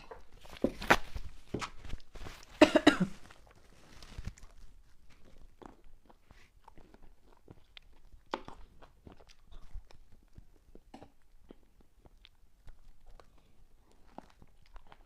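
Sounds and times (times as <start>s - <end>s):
mouth chewing clicks and smacks: 5.1s - 15.0s.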